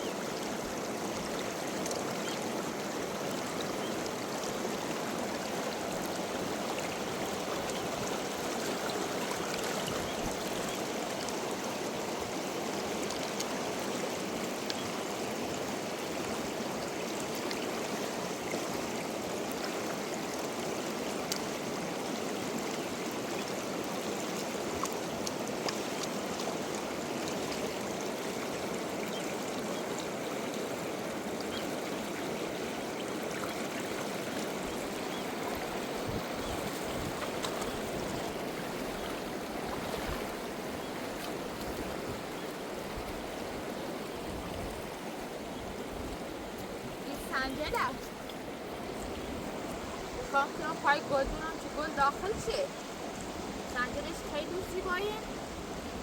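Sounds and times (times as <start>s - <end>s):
river water flowing: 0.0s - 56.0s
faint ticks: 14.6s - 14.8s.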